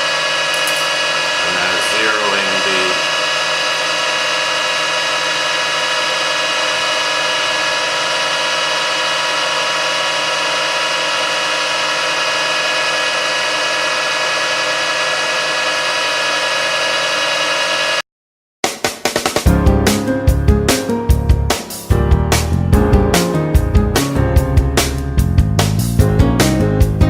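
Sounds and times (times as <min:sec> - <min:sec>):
metal lathe whining: 0:00.0 - 0:18.0.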